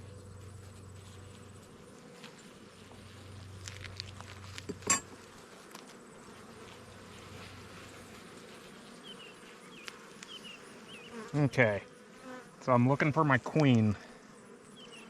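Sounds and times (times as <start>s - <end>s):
honeybees buzzing: 0.0s - 15.0s
hive frames clicking: 9.8s - 11.3s, 13.5s - 13.8s.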